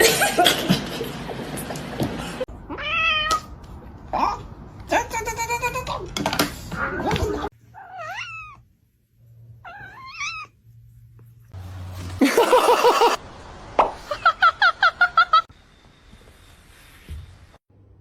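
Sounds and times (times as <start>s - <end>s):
cat meowing: 2.7s - 3.5s, 7.7s - 8.6s, 9.6s - 10.6s.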